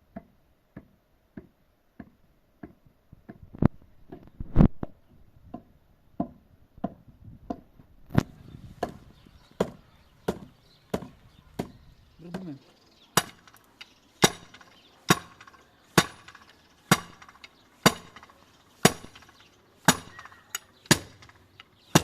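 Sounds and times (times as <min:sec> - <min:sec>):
tool striking wood: 0:00.1 - 0:03.4, 0:08.8 - 0:22.0.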